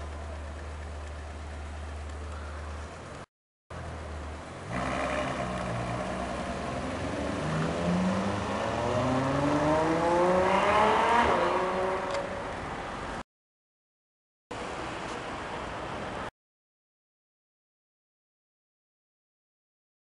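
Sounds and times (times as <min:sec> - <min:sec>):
car engine accelerating hard: 0:04.6 - 0:12.3.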